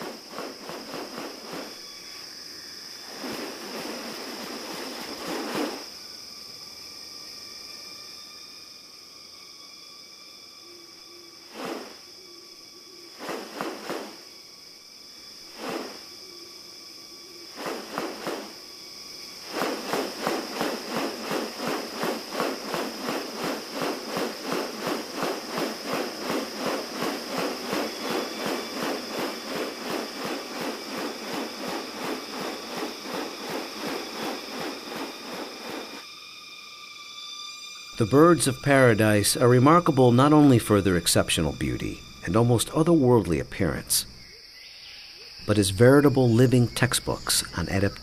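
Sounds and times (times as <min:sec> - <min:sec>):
high insect drone: 0:00.0 - 0:48.0
rasping insect pulses: 0:00.0 - 0:48.0
rapid evenly spaced pulses: 0:19.4 - 0:36.1.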